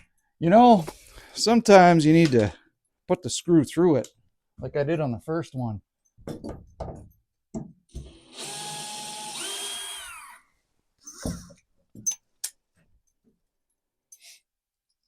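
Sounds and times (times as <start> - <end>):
cordless drill driving a screw: 8.0 - 10.4.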